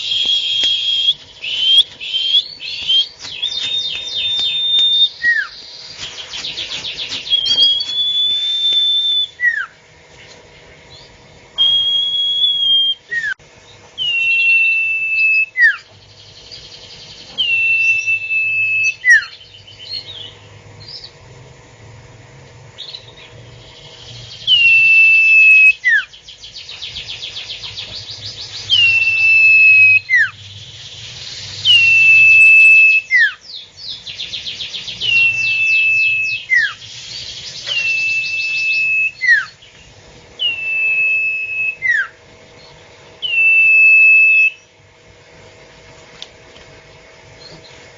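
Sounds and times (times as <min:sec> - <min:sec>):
bird whistling call: 0:00.0 - 0:09.8, 0:10.9 - 0:13.4, 0:14.0 - 0:21.1, 0:22.8 - 0:39.7, 0:40.4 - 0:42.2, 0:43.2 - 0:44.7.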